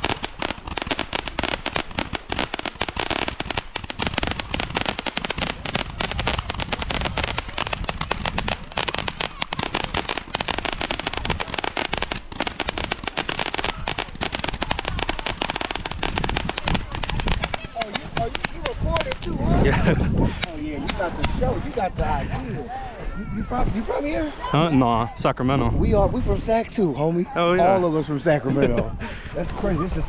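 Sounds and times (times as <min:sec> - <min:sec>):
fireworks bangs and crackles: 0:00.0 - 0:22.5.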